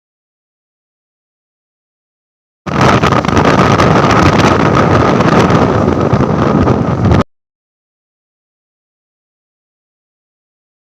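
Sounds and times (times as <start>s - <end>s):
motorcycle running at speed: 2.7s - 7.2s
wind rushing over microphone: 2.7s - 7.3s.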